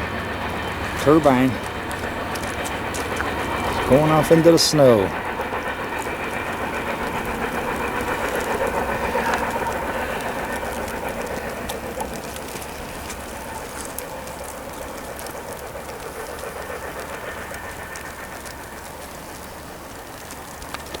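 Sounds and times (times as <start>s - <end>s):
freight train rolling on rails: 0.0s - 21.0s
train wheels clicking: 0.0s - 21.0s.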